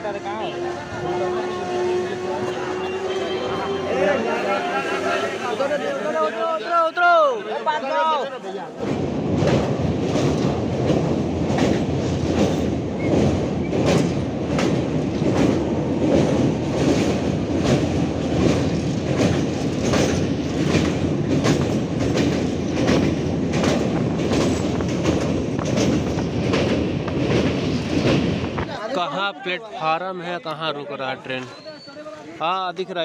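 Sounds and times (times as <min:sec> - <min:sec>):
train coaches rumbling: 0:00.0 - 0:33.0
wheels clacking over rail joints: 0:09.3 - 0:28.6.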